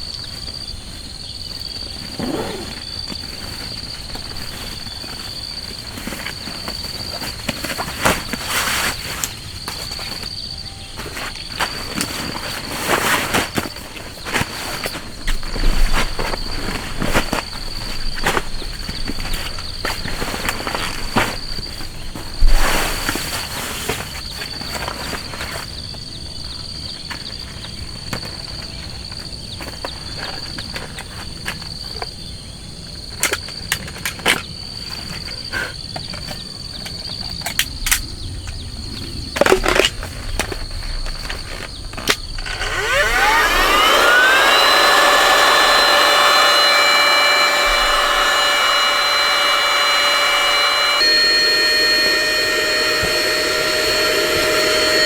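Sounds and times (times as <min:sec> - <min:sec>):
small electric motor whining: 0:42.3 - 0:55.0.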